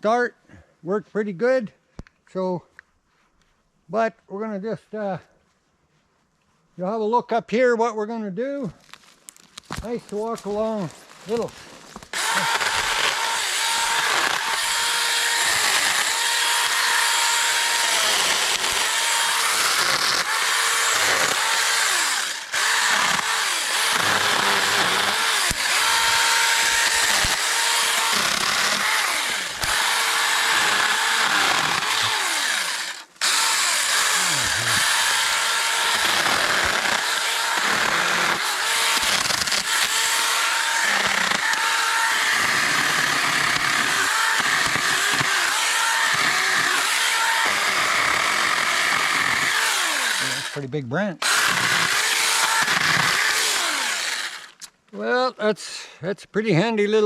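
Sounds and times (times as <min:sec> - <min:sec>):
electric chainsaw cutting branches: 0:12.1 - 0:50.6, 0:51.2 - 0:54.6.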